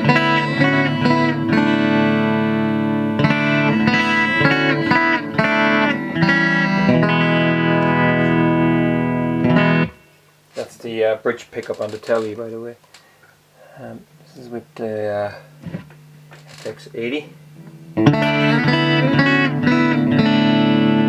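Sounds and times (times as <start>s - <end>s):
clean electric guitar chords: 0.0s - 10.3s, 17.4s - 21.0s.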